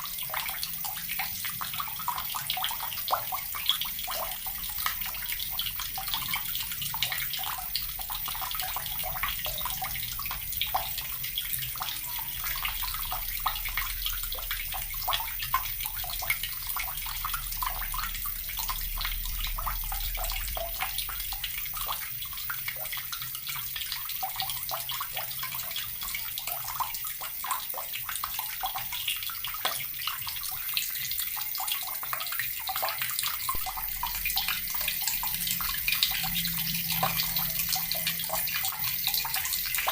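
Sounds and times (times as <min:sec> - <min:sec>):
water running from a tap: 0:00.0 - 0:39.9.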